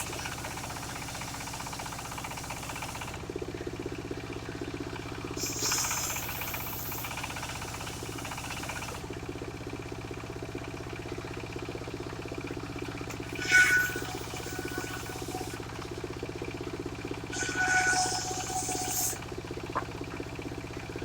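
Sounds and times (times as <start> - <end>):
sawmill engine running: 0.0 - 21.0.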